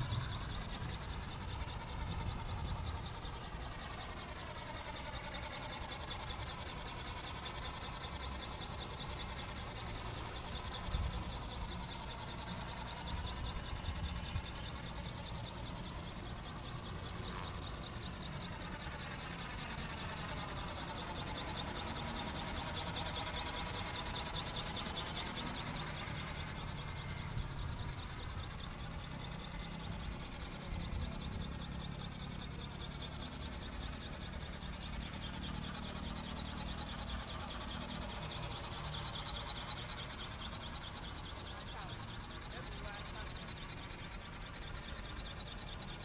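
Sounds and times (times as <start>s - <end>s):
low wind rumble: 0.0s - 3.6s
model ornithopter whirring: 0.0s - 46.0s.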